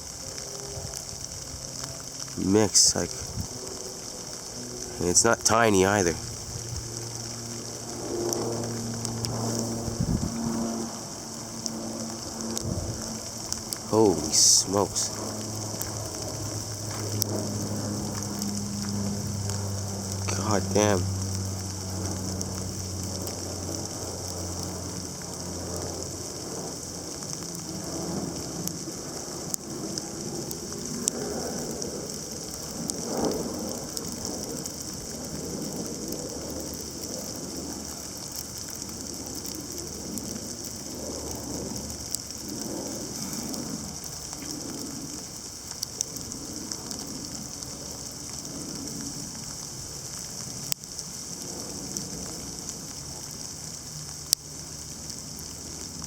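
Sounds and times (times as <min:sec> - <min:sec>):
low hum: 0:03.1 - 0:49.1
sharp ticks of ice: 0:06.0 - 0:56.0
sleet hissing on surfaces: 0:42.7 - 0:45.7.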